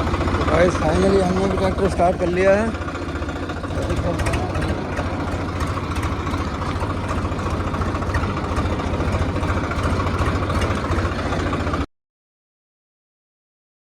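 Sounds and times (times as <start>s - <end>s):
tractor diesel engine idling: 0.0s - 11.9s.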